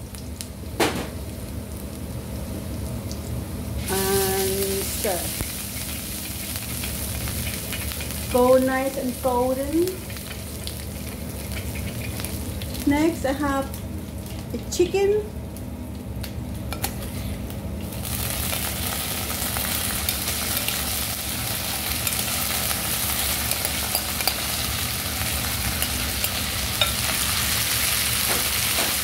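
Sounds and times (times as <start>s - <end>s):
chicken sizzling in oil: 0.0s - 29.0s
metal spoon stirring in wok: 5.6s - 8.4s, 10.3s - 12.2s, 23.3s - 24.7s.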